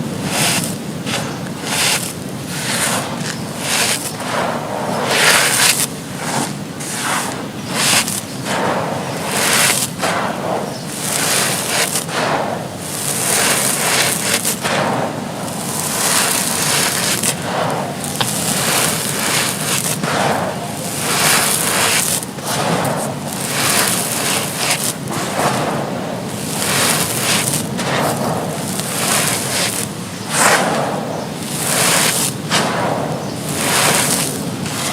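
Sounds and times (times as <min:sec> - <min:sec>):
charcoal bricks crumbling: 0:15.5 - 0:30.0.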